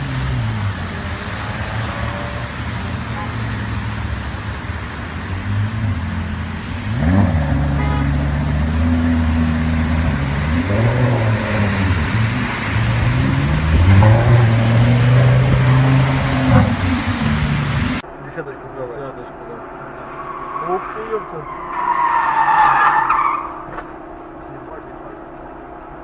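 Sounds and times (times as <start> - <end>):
car engine revving: 0.0 - 18.1.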